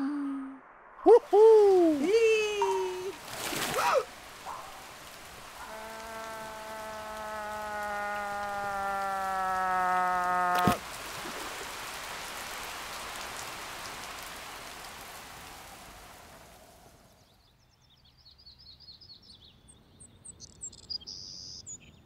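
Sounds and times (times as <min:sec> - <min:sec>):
descending held tone: 0:00.0 - 0:03.2
rain splashing on water: 0:01.0 - 0:17.4.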